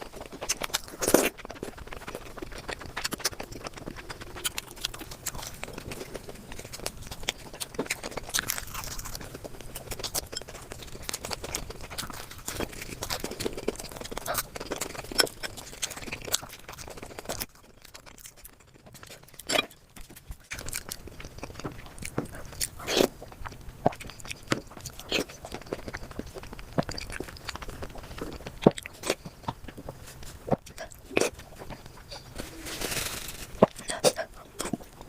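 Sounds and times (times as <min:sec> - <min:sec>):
person chewing and crunching: 0:00.0 - 0:35.0.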